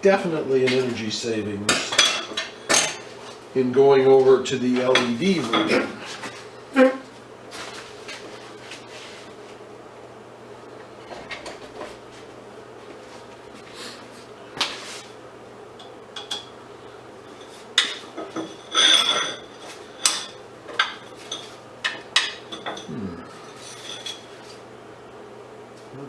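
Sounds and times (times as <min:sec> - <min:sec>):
metal parts and tools clinking: 0:17.8 - 0:21.5.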